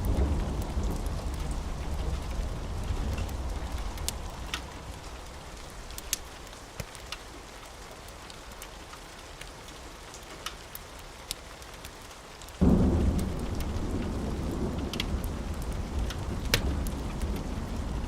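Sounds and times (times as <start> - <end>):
thunder rumble: 0.0 - 6.2, 12.6 - 18.0
steady rain: 0.0 - 18.0.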